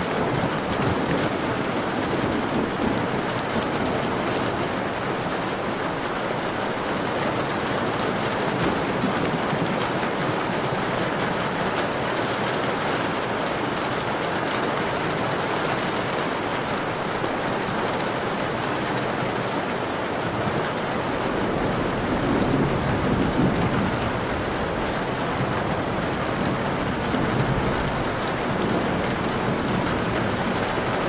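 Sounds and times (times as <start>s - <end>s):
heavy rain on a window: 0.0s - 31.0s
distant thunder rumble: 0.1s - 5.5s, 21.0s - 31.0s.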